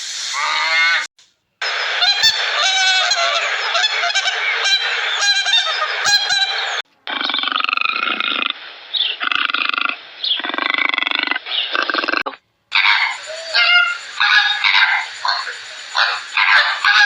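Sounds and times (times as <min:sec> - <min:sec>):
harsh rasping bird calls: 0:02.2 - 0:17.0
farm birds honking and calling: 0:12.7 - 0:17.0.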